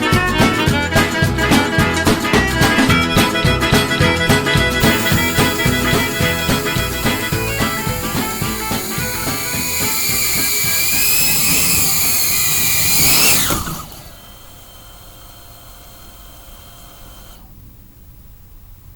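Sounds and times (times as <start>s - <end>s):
drone motors whining: 2.8s - 17.6s
faint steady hiss: 4.8s - 18.9s.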